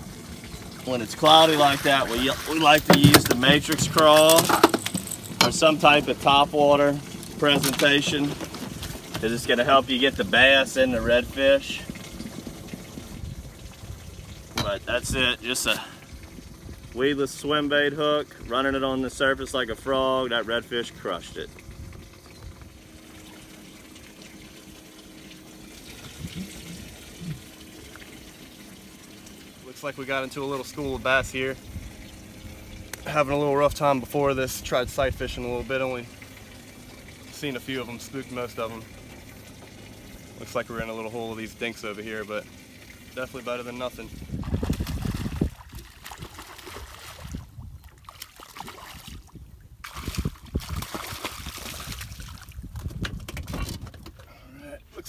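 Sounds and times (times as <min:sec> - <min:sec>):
faint steady hum: 0:00.0 - 0:52.7
water running and splashing: 0:00.0 - 0:53.6.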